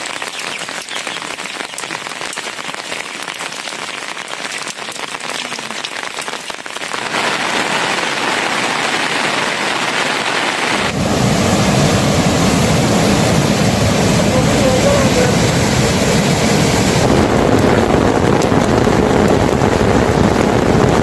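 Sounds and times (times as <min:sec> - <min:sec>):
rain falling: 0:00.0 - 0:21.0
deep rushing sound: 0:10.7 - 0:20.5.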